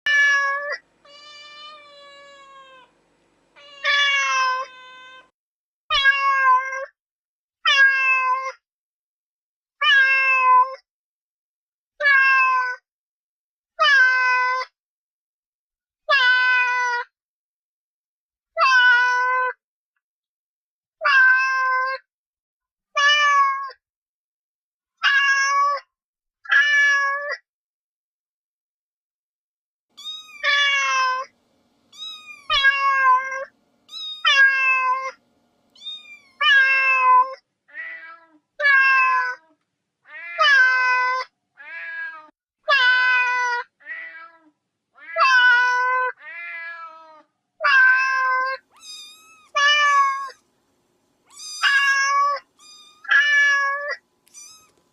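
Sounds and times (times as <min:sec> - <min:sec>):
cat meowing: 0:00.1 - 0:03.0, 0:03.6 - 0:05.3, 0:25.0 - 0:25.8, 0:30.0 - 0:31.3, 0:31.9 - 0:35.2, 0:35.8 - 0:39.5, 0:40.1 - 0:50.4, 0:51.3 - 0:54.9.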